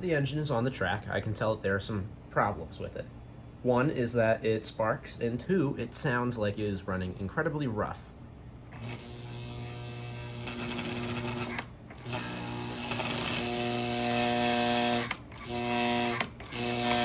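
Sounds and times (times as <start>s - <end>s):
toy train motor buzzing: 8.7s - 17.0s.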